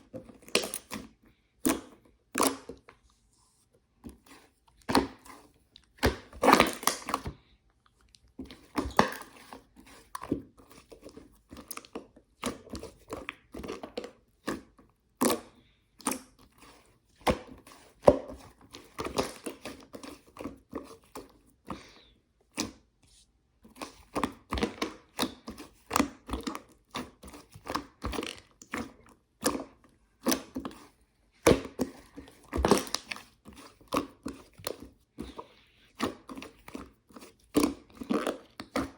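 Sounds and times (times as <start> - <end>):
hands squishing slime: 0.0 - 38.9
slime squelching: 0.0 - 38.9.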